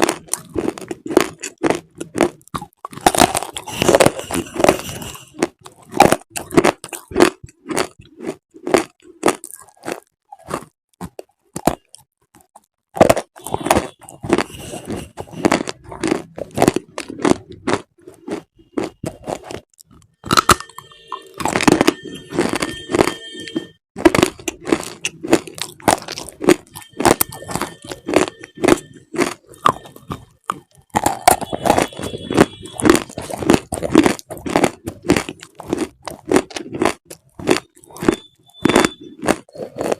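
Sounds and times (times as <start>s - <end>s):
brittle crunching: 0.0s - 39.9s.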